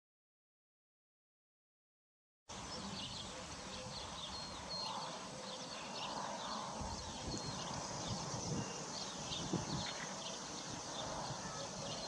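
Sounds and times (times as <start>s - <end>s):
outdoor background hiss: 2.5s - 12.0s
small birds chirping: 2.5s - 12.0s.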